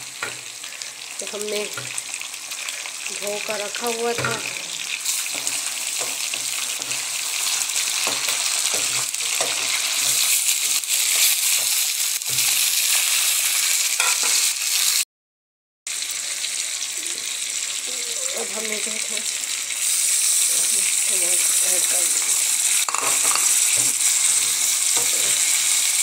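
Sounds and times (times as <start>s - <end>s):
spoon scraping and knocking pan: 0.0s - 0.5s, 1.7s - 2.2s, 4.0s - 12.6s, 14.0s - 14.5s, 22.2s - 25.7s
chicken sizzling in hot oil: 0.0s - 15.0s, 15.9s - 26.0s.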